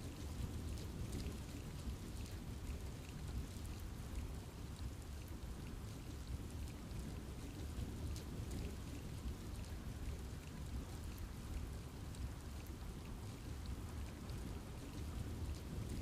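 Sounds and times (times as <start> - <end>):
rain falling on trees: 0.0 - 16.0.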